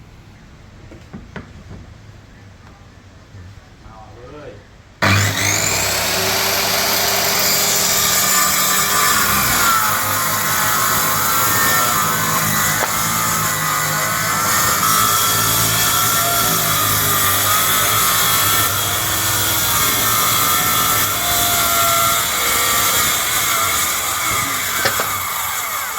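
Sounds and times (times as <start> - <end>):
circular saw cutting wood: 5.0 - 25.9.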